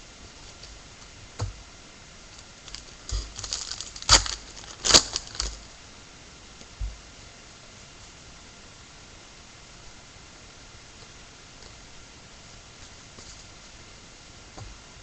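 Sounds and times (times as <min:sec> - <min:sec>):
sharp crackles: 0:02.3 - 0:05.7
wrappers crinkling and rustling: 0:02.4 - 0:05.7.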